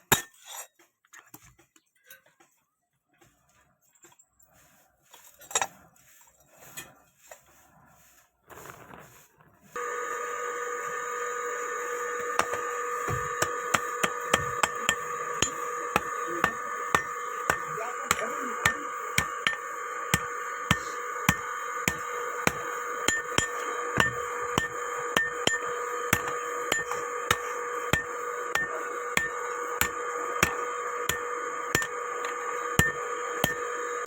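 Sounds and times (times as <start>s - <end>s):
steady background hum: 9.8s - 34.0s
hammer striking iron on anvil: 12.4s - 33.9s.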